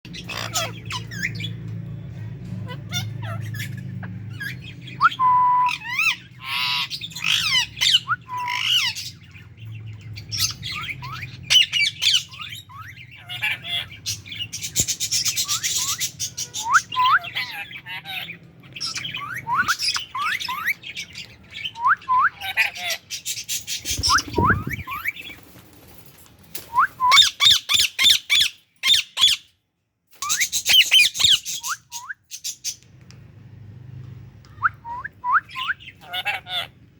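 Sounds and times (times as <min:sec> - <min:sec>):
parakeets chirping and screeching: 0:00.1 - 0:33.5, 0:35.4 - 0:36.9
bird whistle: 0:19.2 - 0:20.7.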